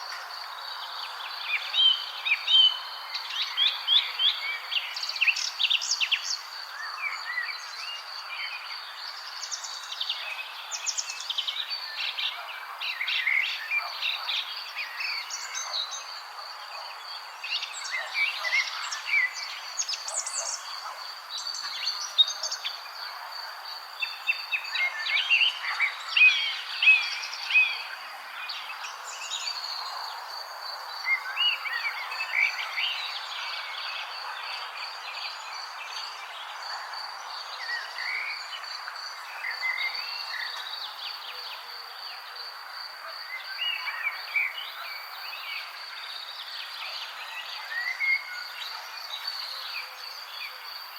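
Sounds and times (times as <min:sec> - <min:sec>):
wild birds chirping: 0:00.0 - 0:50.9.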